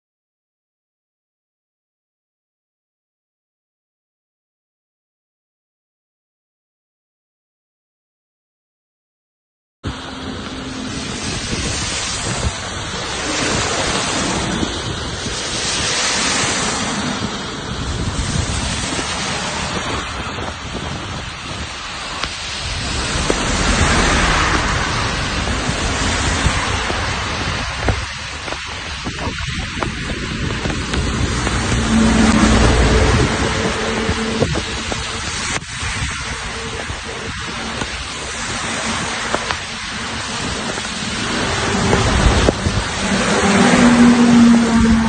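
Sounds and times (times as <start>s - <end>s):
heavy rain: 9.9s - 45.0s
rumble of thunder: 11.2s - 28.6s, 29.2s - 37.8s
steady low tone: 22.5s - 27.2s.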